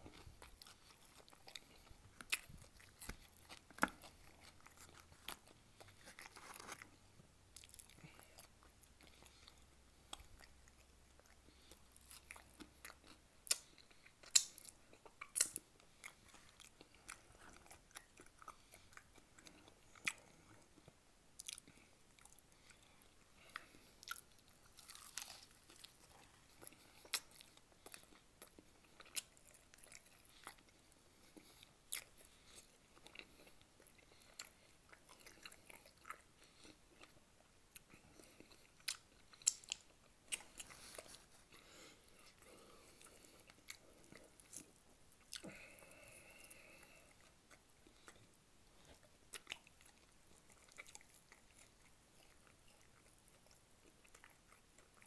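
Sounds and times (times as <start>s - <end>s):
wet chewing and smacking: 0.0s - 55.0s.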